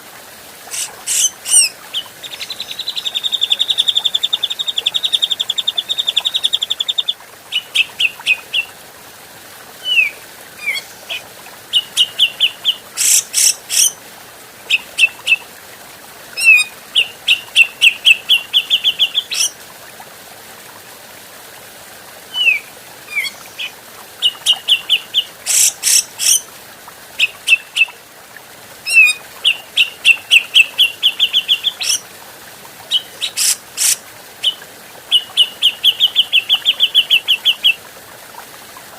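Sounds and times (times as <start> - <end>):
bulbul calling: 32.9 - 37.7.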